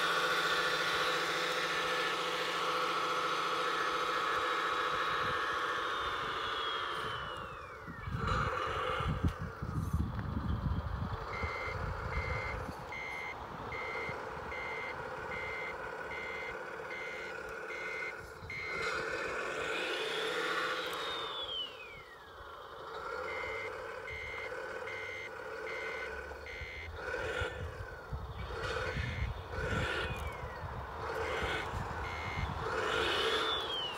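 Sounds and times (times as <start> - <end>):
constant engine hum: 0.0 - 33.9
tone gliding up and down: 0.0 - 33.9
electronic reversing beeper: 11.2 - 33.9.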